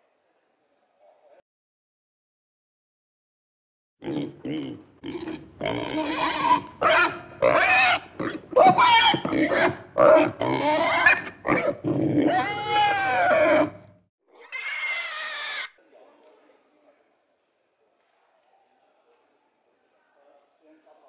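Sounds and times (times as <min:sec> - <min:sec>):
pigs grunting and squealing: 0:04.0 - 0:15.8.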